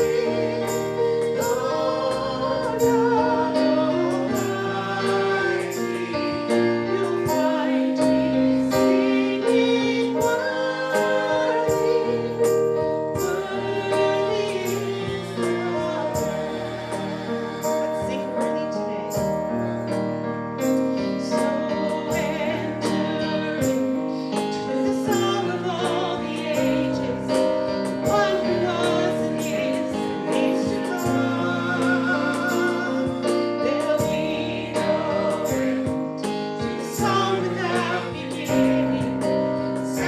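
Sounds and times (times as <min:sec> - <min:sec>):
sustained keyboard chords: 0:00.0 - 0:40.0
woman singing: 0:18.0 - 0:19.1, 0:21.6 - 0:23.9, 0:24.6 - 0:35.3, 0:36.8 - 0:39.2.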